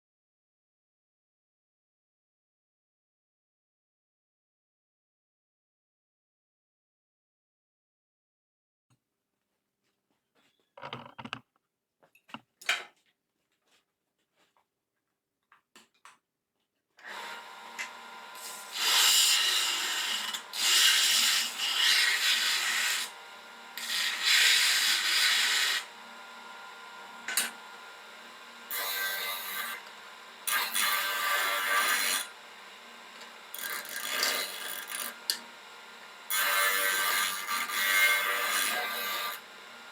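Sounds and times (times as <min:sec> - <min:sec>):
abrasive tool rasping metal: 0:18.4 - 0:23.1, 0:23.8 - 0:25.9.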